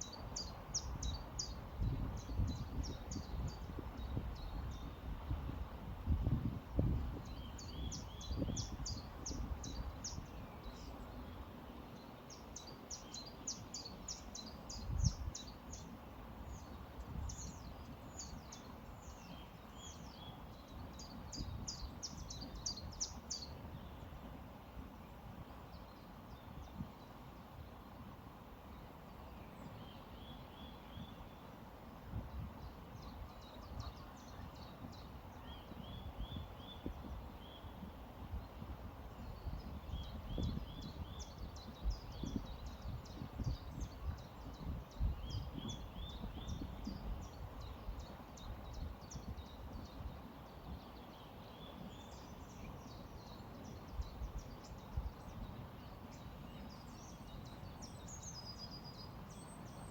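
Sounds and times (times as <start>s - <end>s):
songbirds trilling: 32.2s - 59.9s.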